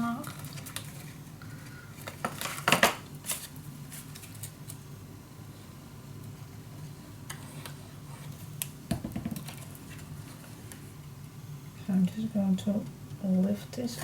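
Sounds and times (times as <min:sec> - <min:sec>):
low steady hum: 0:00.0 - 0:14.0
paper rustling and tapping: 0:08.9 - 0:10.0.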